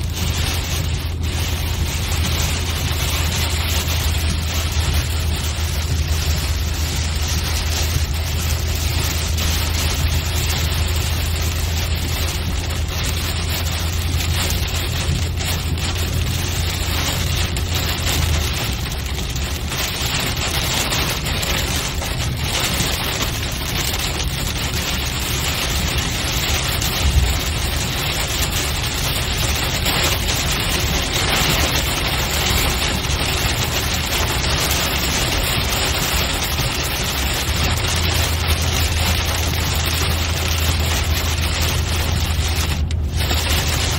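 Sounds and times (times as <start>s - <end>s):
car engine and road hum: 0.0s - 43.9s
rain and wet tyre noise: 0.0s - 43.9s.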